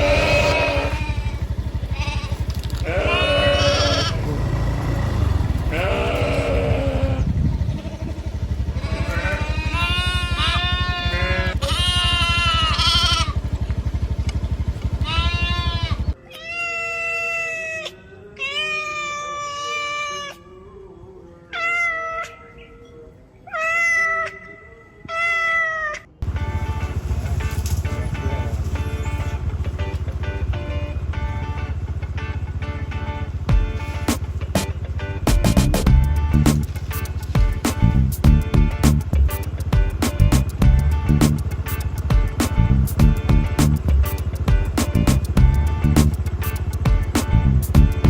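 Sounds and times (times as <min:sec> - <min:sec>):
farm animals bleating: 0:00.0 - 0:13.9, 0:14.8 - 0:20.8, 0:21.4 - 0:26.1
steady low rumble: 0:00.0 - 0:16.2, 0:26.2 - 0:48.0.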